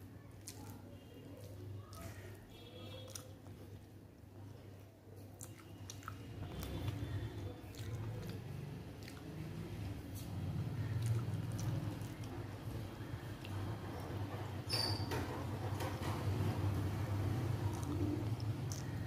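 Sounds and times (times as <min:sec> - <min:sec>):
fingers squishing food: 0:00.2 - 0:04.0, 0:05.2 - 0:14.1
person chewing food: 0:00.3 - 0:04.0, 0:05.2 - 0:14.2, 0:17.5 - 0:19.0
wet mouth clicks: 0:05.4 - 0:09.6, 0:10.2 - 0:12.3, 0:17.7 - 0:19.0.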